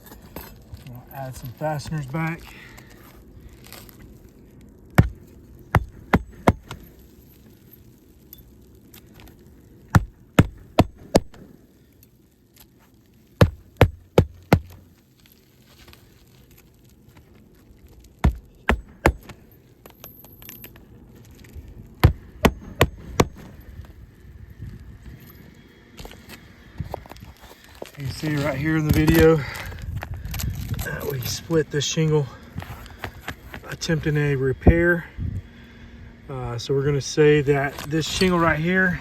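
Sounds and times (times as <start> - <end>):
hammer hitting roofing nails: 5.0 - 6.8, 9.9 - 11.5, 13.4 - 14.8, 18.2 - 19.4, 22.0 - 23.5.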